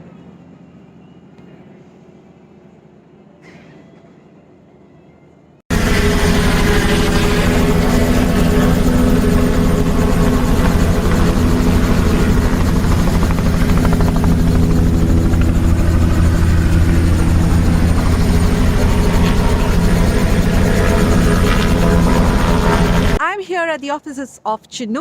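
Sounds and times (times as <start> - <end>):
helicopter engine and rotor: 5.7 - 23.2.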